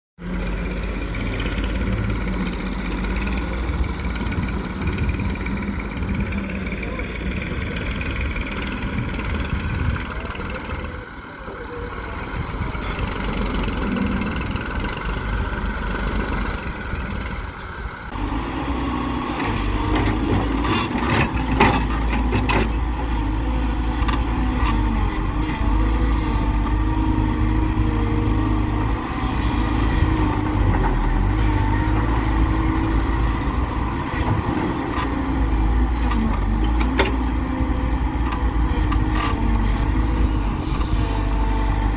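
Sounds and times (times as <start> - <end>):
heavy diesel engines running: 0.2 - 41.9.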